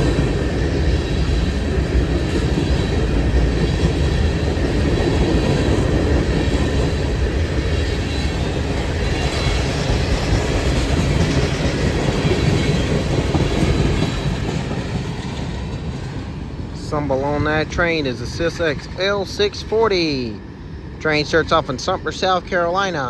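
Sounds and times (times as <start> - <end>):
freight train cars rolling past: 0.0 - 23.0.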